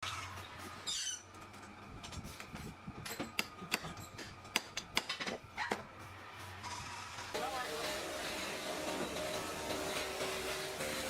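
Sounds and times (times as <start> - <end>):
brief squeak: 0.8 - 1.3.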